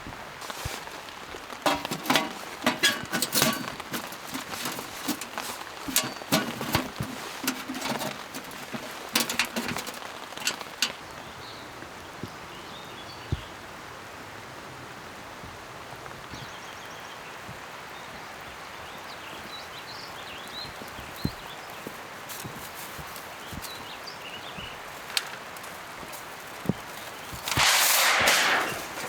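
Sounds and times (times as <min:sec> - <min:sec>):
sharp knocks and clatters: 0:01.6 - 0:11.0.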